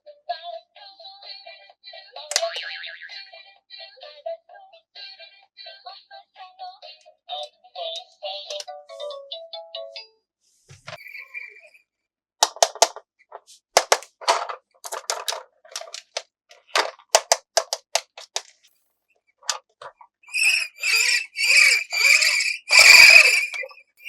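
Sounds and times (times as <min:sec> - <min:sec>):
rasping strokes: 0:20.3 - 0:23.8.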